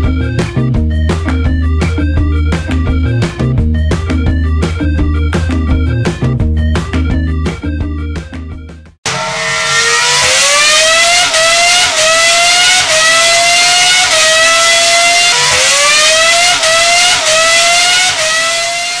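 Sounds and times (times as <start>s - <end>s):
race car engine accelerating: 9.1s - 19.0s.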